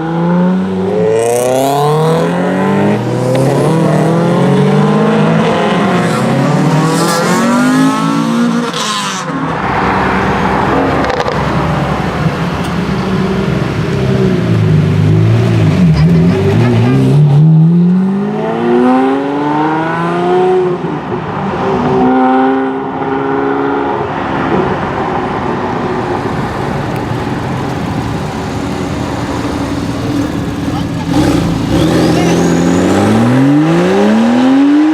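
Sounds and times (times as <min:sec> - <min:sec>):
sports car engine revving: 0:26.2 - 0:34.9.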